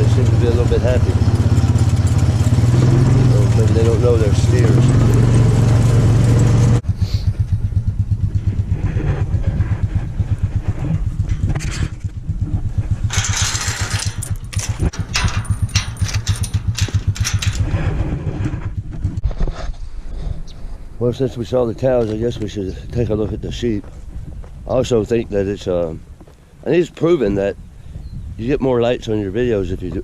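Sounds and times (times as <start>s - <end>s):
farm vehicle engine idling: 0.0s - 19.2s.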